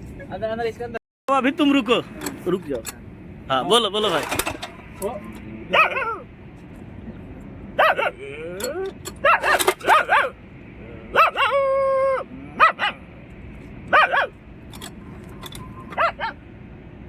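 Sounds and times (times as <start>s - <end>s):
man imitating dog barks: 5.7s - 6.2s, 7.8s - 10.4s, 11.1s - 13.0s
man whining: 7.9s - 8.9s.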